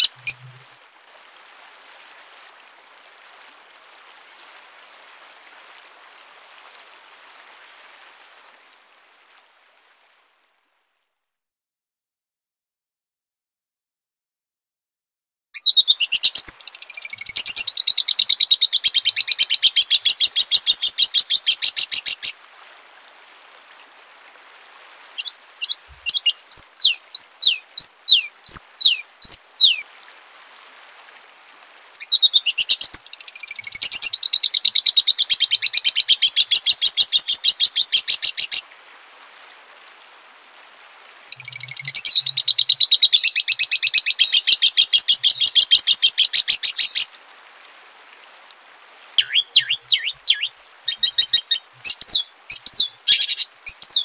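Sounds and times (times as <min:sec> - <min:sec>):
songbird whistling and trilling: 0:00.0 - 0:00.5, 0:15.6 - 0:22.3, 0:25.2 - 0:29.8, 0:32.0 - 0:38.6, 0:41.3 - 0:47.0, 0:49.2 - 0:54.0.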